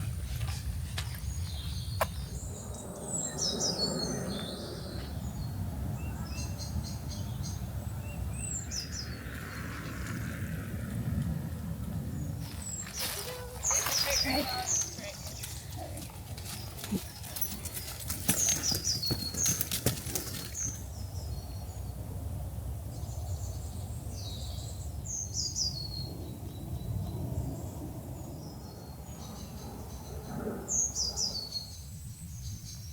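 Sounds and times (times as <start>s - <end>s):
low wind rumble: 0.0s - 32.9s
songbird chirping: 0.3s - 9.9s, 12.2s - 22.0s.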